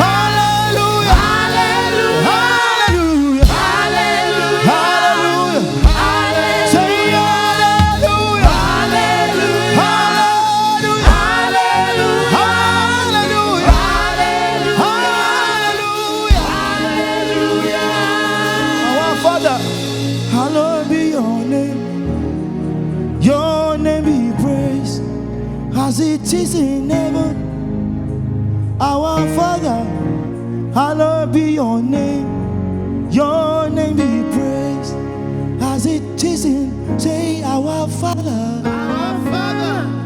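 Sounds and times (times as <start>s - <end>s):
voices singing over band: 0.0s - 22.0s, 38.5s - 40.0s
deep drum hits: 2.9s - 4.8s, 5.7s - 10.1s, 11.0s - 11.8s, 16.3s - 17.8s.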